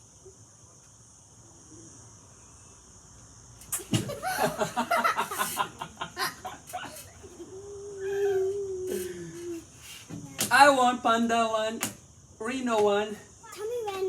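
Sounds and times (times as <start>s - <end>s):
kissing smacks: 3.6s - 4.0s
child laughing: 3.8s - 9.6s.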